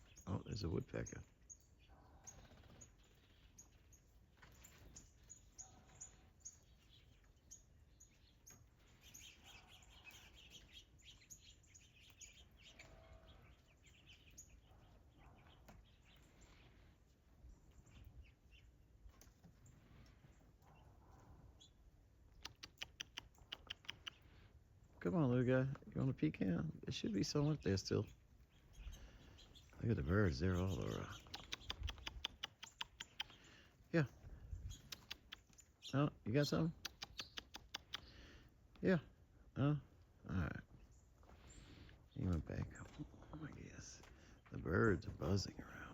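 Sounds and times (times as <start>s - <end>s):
small birds chirping: 0.0s - 45.9s
sharp clicks: 22.3s - 24.2s, 31.1s - 33.4s, 34.8s - 35.6s, 36.7s - 38.1s.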